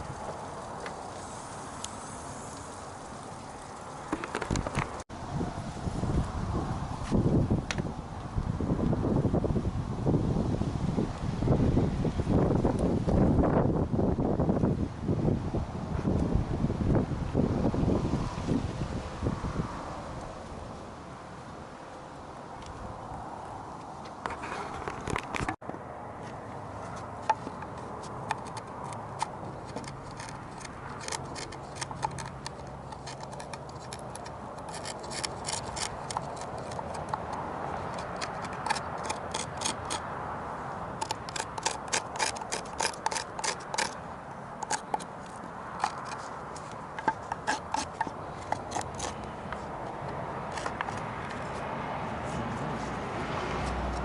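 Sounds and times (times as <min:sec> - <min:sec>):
hand tool carving wood: 0:27.2 - 0:40.1, 0:41.0 - 0:44.0, 0:44.6 - 0:54.0
rubbing on wood: 0:44.6 - 0:53.8.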